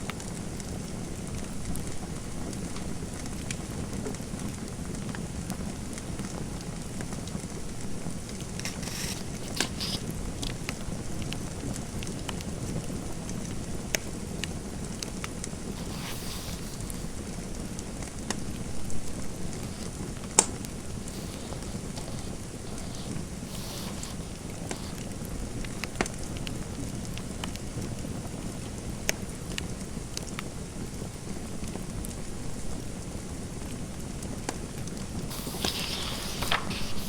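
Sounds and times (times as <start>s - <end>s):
fireplace fire crackling: 34.9s - 37.0s.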